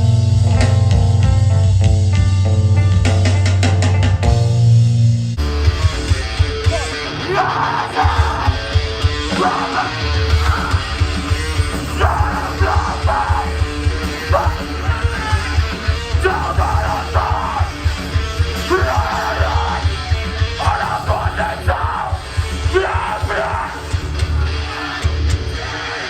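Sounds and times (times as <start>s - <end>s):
punk band playing live: 0.0s - 26.0s
shouted vocals: 6.6s - 26.0s.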